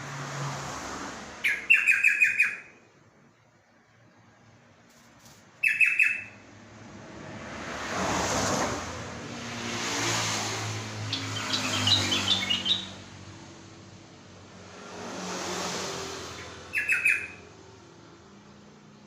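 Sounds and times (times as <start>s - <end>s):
bird chattering: 1.4s - 2.7s, 5.6s - 6.4s, 11.1s - 13.0s, 16.7s - 17.4s.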